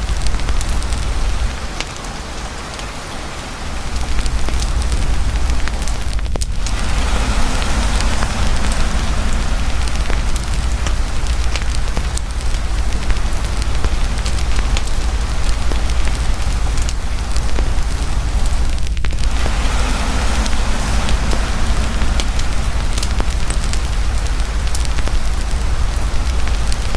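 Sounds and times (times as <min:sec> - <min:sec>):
heavy rain pouring: 0:00.0 - 0:26.9
low rumble: 0:03.6 - 0:26.9
campfire pops and crackles: 0:03.9 - 0:26.9.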